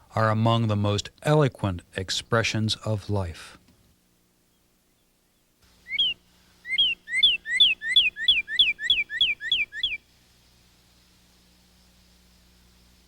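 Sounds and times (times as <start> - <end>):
songbird singing: 4.4 - 10.1.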